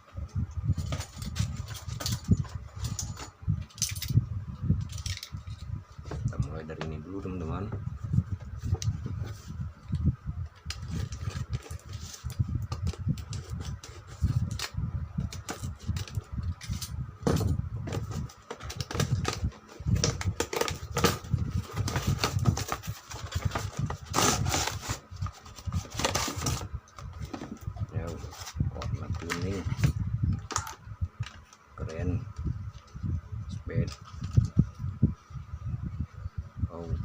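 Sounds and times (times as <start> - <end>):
cardboard and plastic packaging rubbing: 10.7 - 16.2, 17.8 - 30.6.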